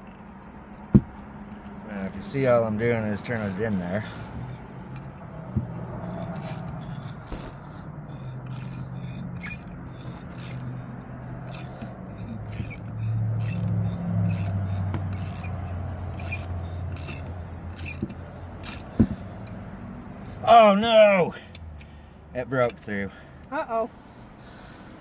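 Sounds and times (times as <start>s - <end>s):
tap rasping scrapes on metal: 0.0s - 19.6s.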